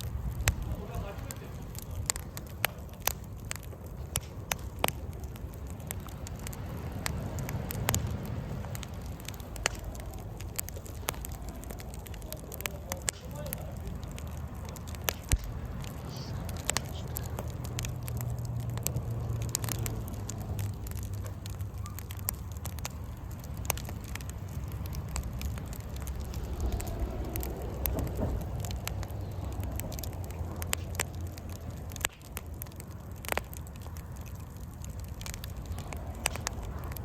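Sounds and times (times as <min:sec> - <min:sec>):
campfire crackling and popping: 0:00.0 - 0:37.0
low rumble: 0:22.5 - 0:37.0.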